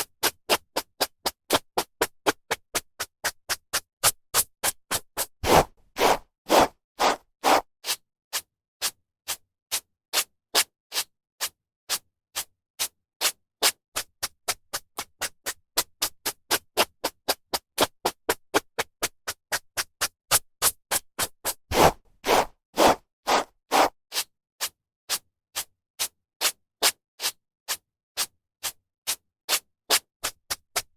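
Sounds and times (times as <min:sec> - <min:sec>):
hairbrush swishing through hair: 0:05.4 - 0:07.6, 0:21.7 - 0:23.9.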